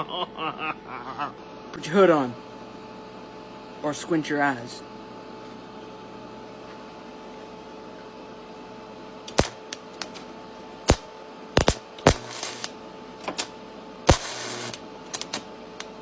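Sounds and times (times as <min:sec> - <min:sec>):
arc welder humming: 0:09.2 - 0:16.0
crackling arc: 0:09.3 - 0:10.2, 0:10.8 - 0:16.0
welding arc snaps and pops: 0:09.3 - 0:16.0.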